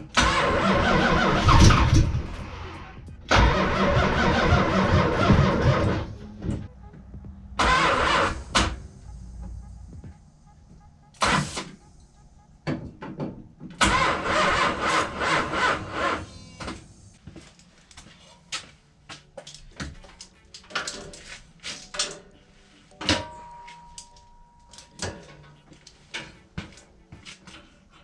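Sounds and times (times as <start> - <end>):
engine starter cranking: 0.0 - 6.7, 7.6 - 8.8, 13.8 - 16.3
clicks and clunks: 19.4 - 22.3.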